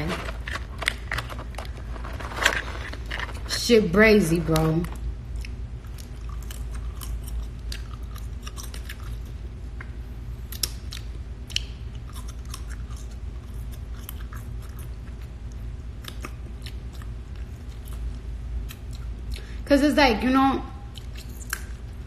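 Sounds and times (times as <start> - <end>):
chewing with wet lip smacks: 5.2 - 19.5, 20.9 - 22.0.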